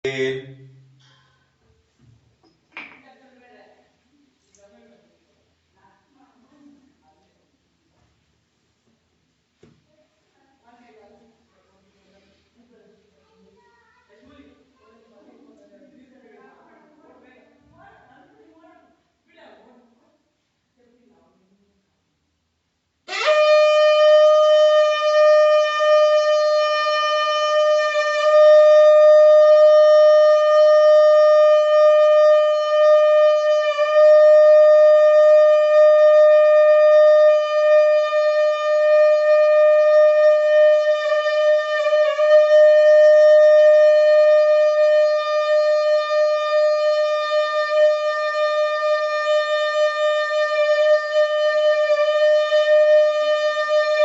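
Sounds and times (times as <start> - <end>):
conch shell blown: 23.1 - 54.0.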